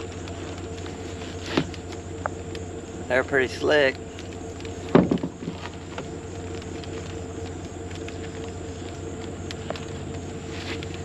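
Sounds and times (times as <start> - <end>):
vehicle engine idling: 0.0 - 11.0
loud knocks: 4.9 - 5.6.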